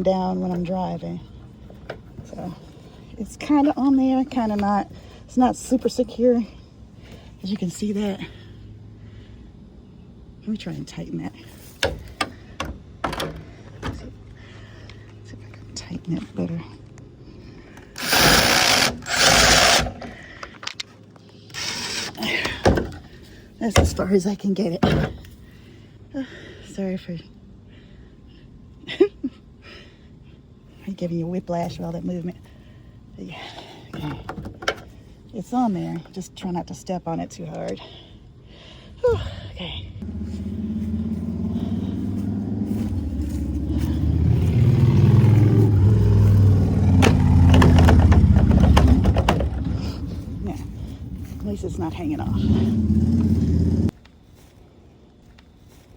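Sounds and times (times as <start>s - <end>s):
vehicle engine humming: 0.0s - 26.1s, 39.1s - 54.6s
power drill driving a screw: 18.0s - 20.2s, 21.5s - 22.2s.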